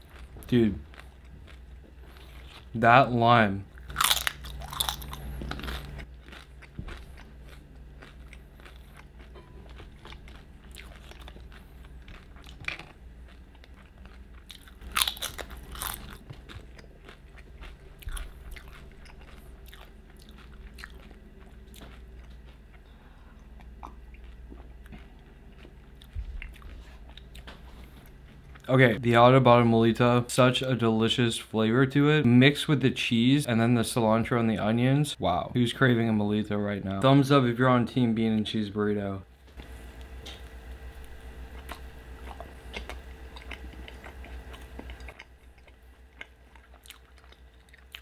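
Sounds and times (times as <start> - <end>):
chewing crunchy tortilla chips: 0.0 - 2.8, 3.7 - 28.7, 39.6 - 48.0.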